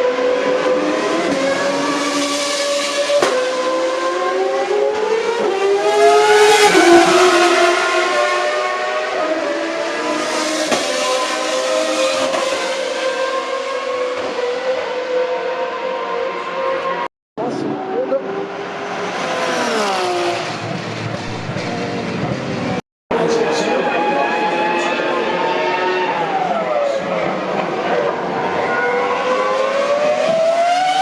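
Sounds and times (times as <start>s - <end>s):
race car engines: 0.0s - 31.0s
race car passing by: 17.4s - 31.0s.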